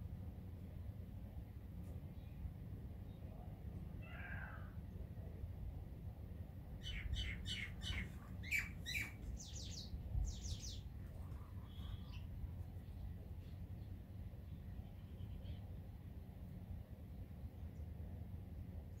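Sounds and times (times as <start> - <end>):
small birds chirping: 6.8 - 16.0
bird whistle: 6.9 - 9.2.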